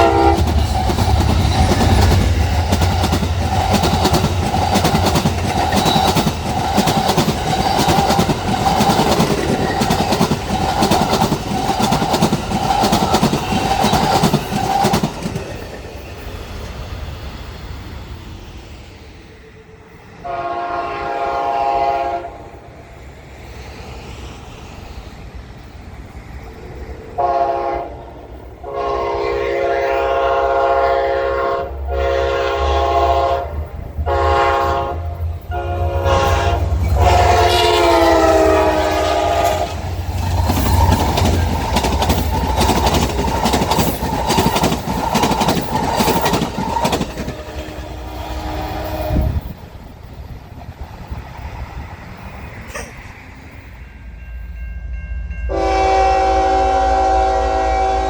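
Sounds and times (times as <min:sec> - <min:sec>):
locomotive air horn blasts: 0:00.0 - 0:00.5, 0:20.2 - 0:22.5, 0:27.2 - 0:27.9, 0:28.6 - 0:39.8, 0:55.5 - 0:58.0
train wheels clacking on rail joints: 0:00.0 - 0:16.8, 0:36.1 - 0:53.5.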